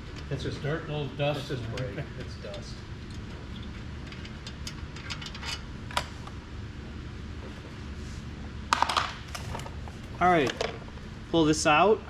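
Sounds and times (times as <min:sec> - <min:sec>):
low shop hum: 0:00.0 - 0:12.0
metal parts clattering: 0:08.8 - 0:10.8.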